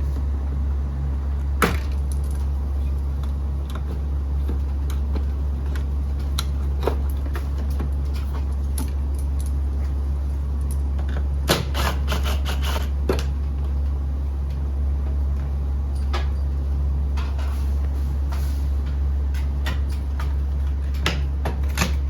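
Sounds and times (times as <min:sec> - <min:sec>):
steady low hum: 0:00.0 - 0:22.0
clicks and knocks of hard parts: 0:19.3 - 0:22.0.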